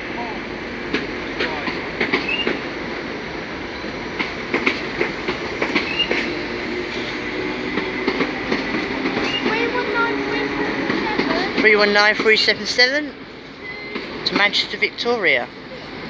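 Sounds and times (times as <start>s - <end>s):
train wheels clattering over rails: 0.0s - 16.0s
high wheel squeals: 5.8s - 12.0s.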